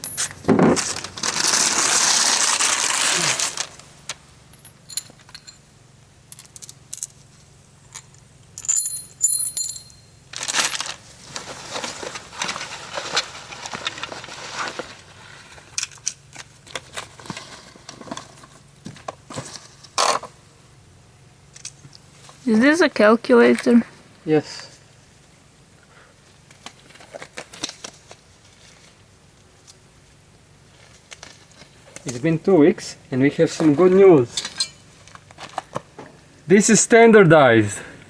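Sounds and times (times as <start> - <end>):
metal objects clattering: 4.5 - 7.4, 8.0 - 11.0
bright metallic clinks: 4.5 - 10.3.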